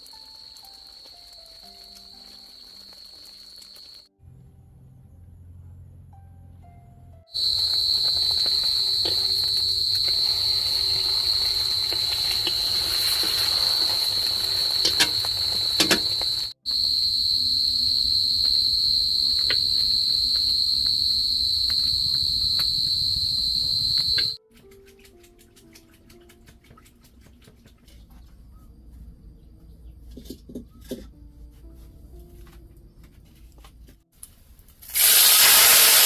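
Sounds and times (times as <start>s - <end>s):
high-pitched insect drone: 7.4s - 24.4s.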